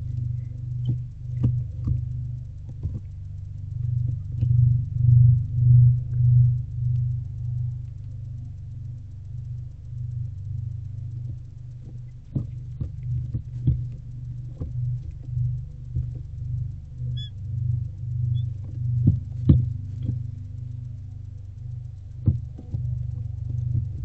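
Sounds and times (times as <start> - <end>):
low hum: 0.0 - 24.0
high chirp: 17.2 - 17.4.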